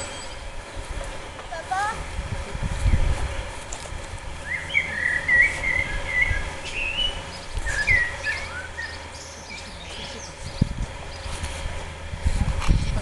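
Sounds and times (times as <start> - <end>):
songbird singing: 4.4 - 11.5.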